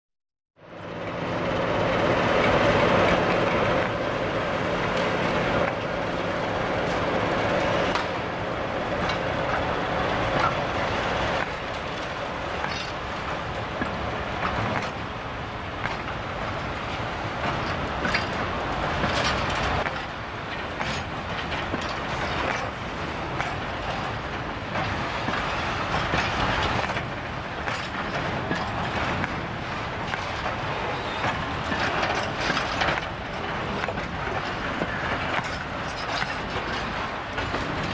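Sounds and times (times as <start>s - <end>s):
diesel locomotive engine humming: 0.6s - 37.9s
wheels clacking over rail joints: 0.7s - 37.9s
high wheel squeals: 30.7s - 31.3s.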